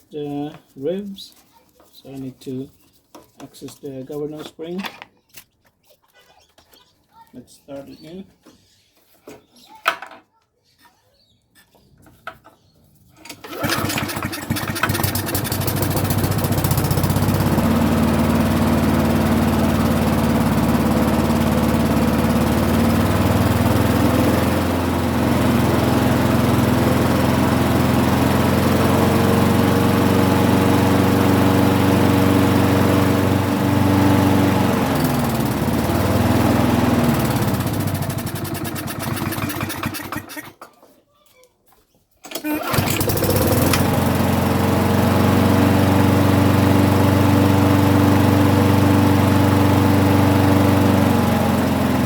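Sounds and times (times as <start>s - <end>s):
lawnmower engine running: 13.2s - 40.6s, 42.2s - 52.0s.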